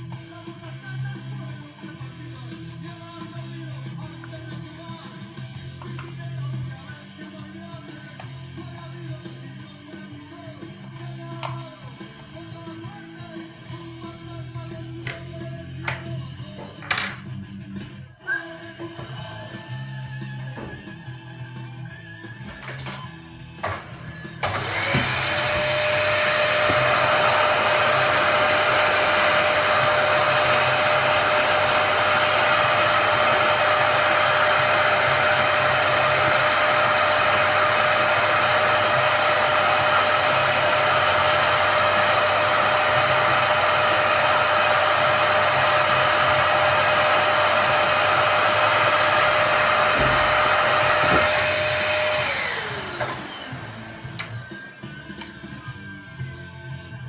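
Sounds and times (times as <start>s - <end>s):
vacuum motor whining: 23.6s - 55.5s.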